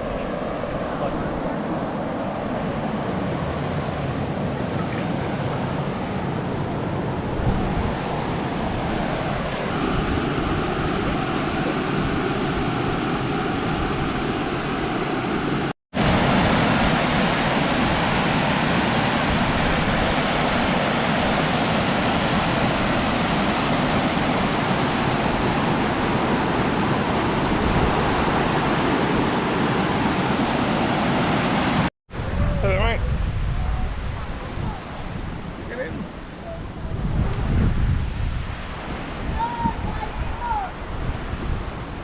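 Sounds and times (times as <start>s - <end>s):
wind noise on microphone: 0.0s - 42.0s.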